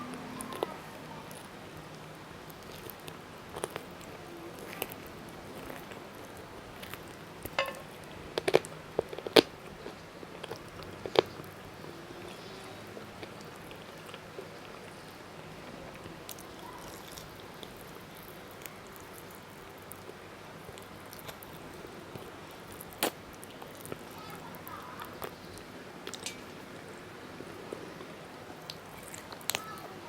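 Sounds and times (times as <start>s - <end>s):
chewing with crunches: 0.0s - 30.0s.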